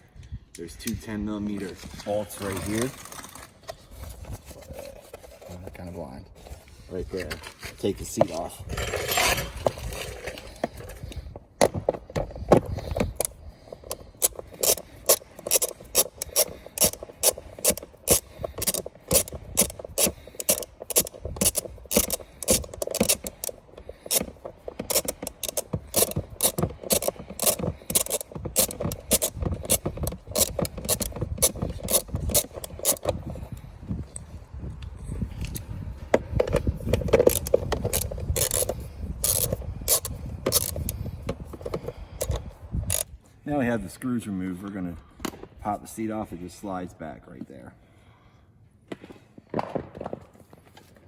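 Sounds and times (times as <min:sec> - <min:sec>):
ratchet clicking: 0:11.0 - 0:33.6, 0:36.4 - 0:43.1.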